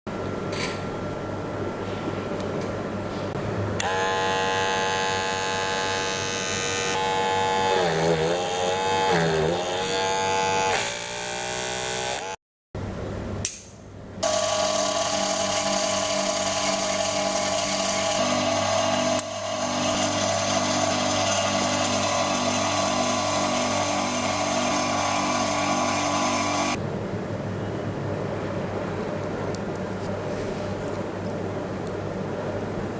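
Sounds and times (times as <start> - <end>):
small electric motor whining: 3.8 - 12.4, 14.2 - 26.8.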